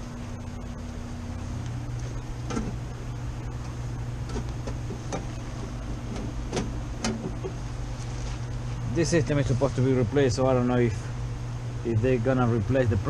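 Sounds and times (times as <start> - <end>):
air conditioning hum: 0.0 - 13.0
light handling clicks and knocks: 3.6 - 5.4.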